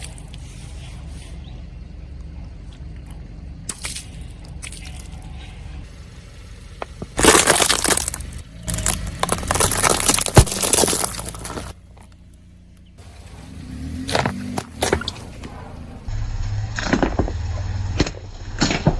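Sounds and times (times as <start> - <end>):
car rumble: 0.0 - 18.9
brittle crackling and crunching: 6.8 - 12.2.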